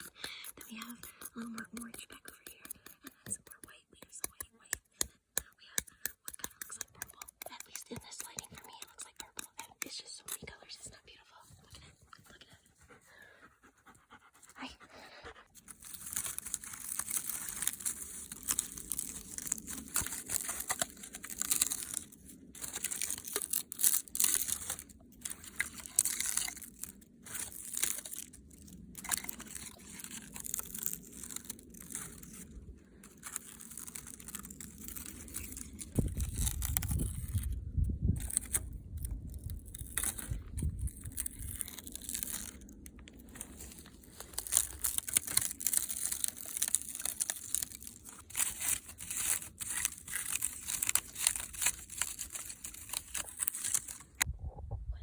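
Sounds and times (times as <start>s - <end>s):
dry material crinkled and torn: 15.6s - 54.3s
heavy low rumble: 54.2s - 55.0s.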